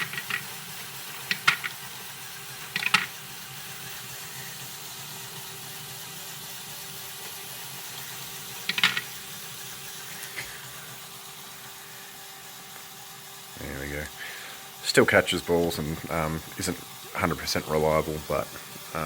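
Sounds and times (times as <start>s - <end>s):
plastic balls clattering: 0.0s - 0.6s, 1.3s - 1.8s, 2.7s - 3.2s, 8.6s - 9.1s
motor hum and pump hiss: 0.0s - 19.0s.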